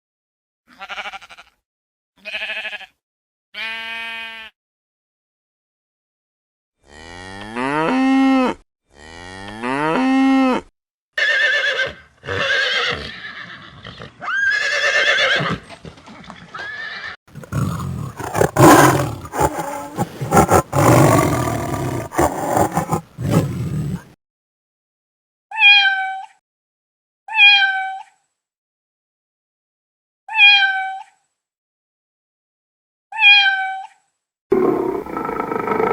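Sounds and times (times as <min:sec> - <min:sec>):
animal calls: 0:17.4 - 0:24.1, 0:34.6 - 0:35.9.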